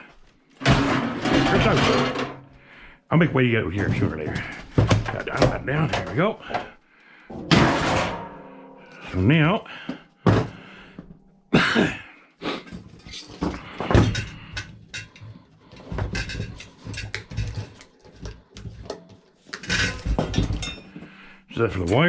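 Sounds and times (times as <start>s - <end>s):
metal parts knocking and clattering: 0.6s - 2.6s, 3.8s - 8.4s, 12.7s - 21.1s.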